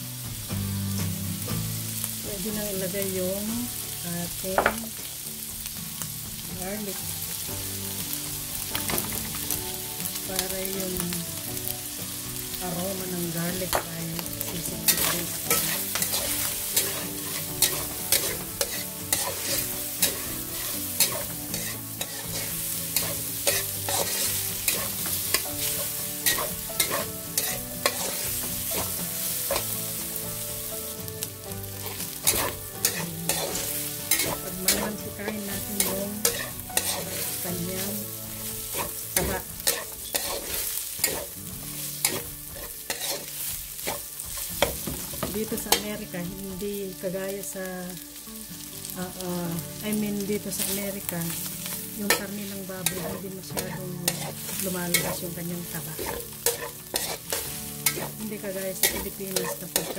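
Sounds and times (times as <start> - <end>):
pork sizzling in a wok: 0.0 - 59.9
spatula scraping and clicking on pan: 14.8 - 29.8, 31.8 - 37.5, 38.4 - 45.8, 51.6 - 58.2, 58.8 - 59.9.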